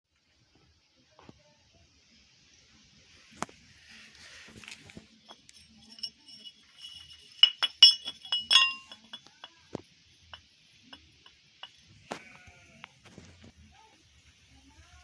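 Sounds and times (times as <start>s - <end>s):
metallic clinks and knocks: 4.6s - 11.9s.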